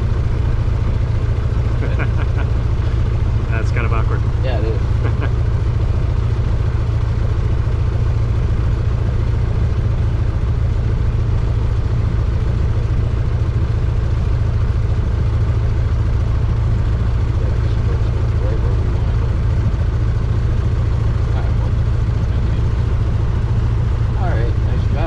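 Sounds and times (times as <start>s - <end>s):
light aircraft engine droning: 0.0s - 25.0s.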